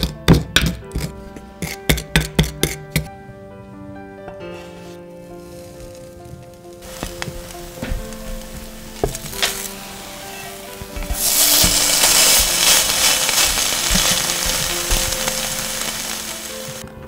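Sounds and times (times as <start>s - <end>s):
bread sizzling in frying pan: 6.8s - 16.8s
wooden spatula knocking pan: 10.7s - 16.8s.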